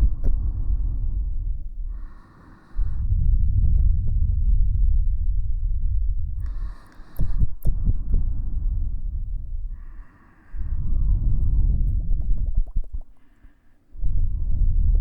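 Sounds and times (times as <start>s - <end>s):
throbbing low rumble: 3.0s - 6.6s, 7.2s - 10.0s, 10.6s - 13.2s
soft taps on microphone: 11.9s - 13.3s.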